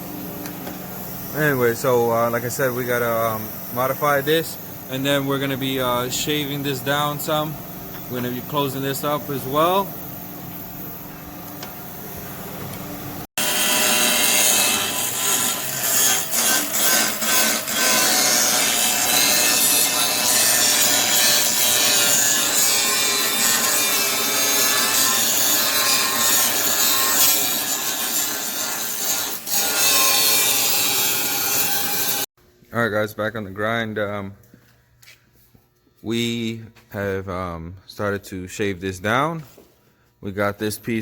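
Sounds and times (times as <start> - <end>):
power tool rasping aluminum: 13.4 - 32.3.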